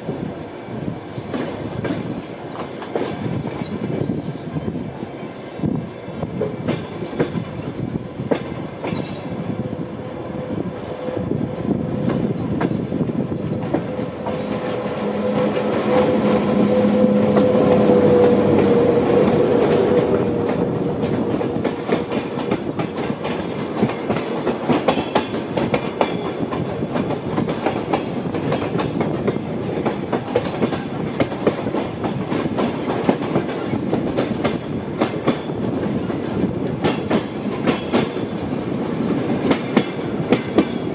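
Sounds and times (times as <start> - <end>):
passing train alongside: 0.0 - 40.9
hiss: 16.0 - 17.4
train wheels clattering over joints: 17.1 - 40.9.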